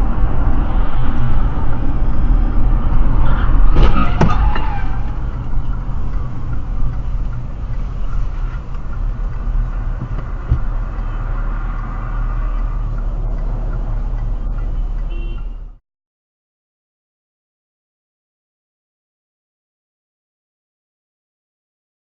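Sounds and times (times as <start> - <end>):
car engine and tyre rumble: 0.0 - 15.8.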